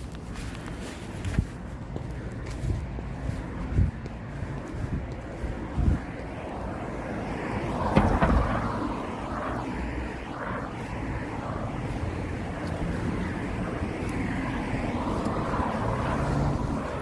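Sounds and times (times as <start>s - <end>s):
traffic rumble: 0.0s - 17.0s
vehicle passing: 1.7s - 17.0s
short knocks: 7.9s - 8.8s.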